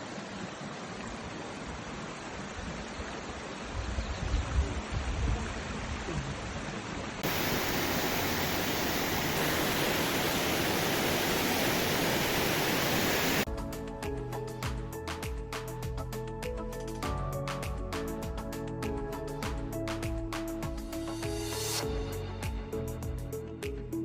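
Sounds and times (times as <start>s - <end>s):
wind rumble on microphone: 3.6s - 13.4s
boiling river hissing: 4.6s - 13.5s
music: 13.5s - 24.0s.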